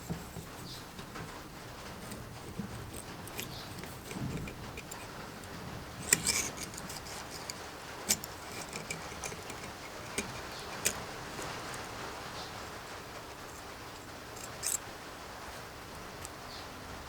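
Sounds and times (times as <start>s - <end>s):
hand tools and metal parts clicking: 2.0s - 14.8s.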